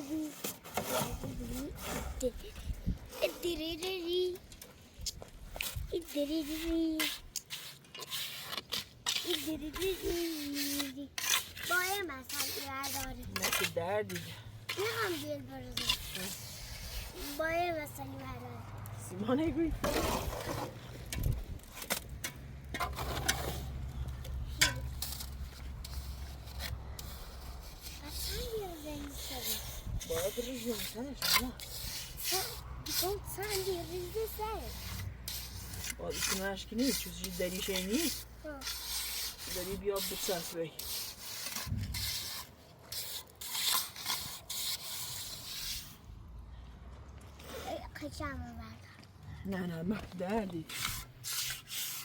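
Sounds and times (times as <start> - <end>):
tools clicking and scraping: 19.8 - 46.0, 50.0 - 52.0.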